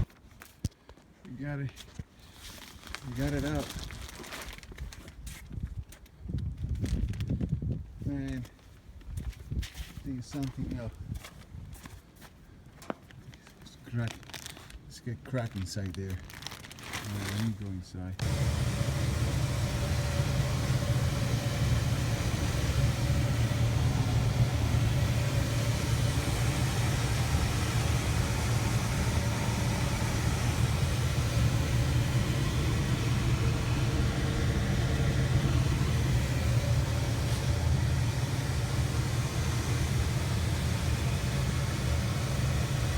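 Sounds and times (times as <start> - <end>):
steady low rumble: 18.2 - 42.9.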